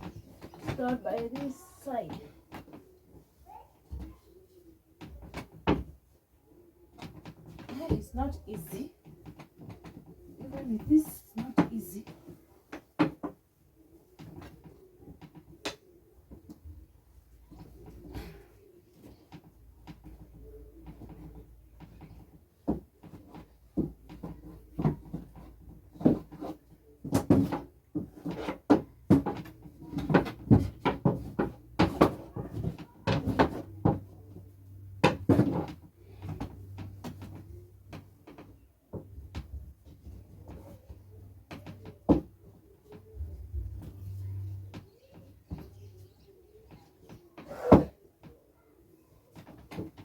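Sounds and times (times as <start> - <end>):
knocks and thumps: 19.0 - 45.8.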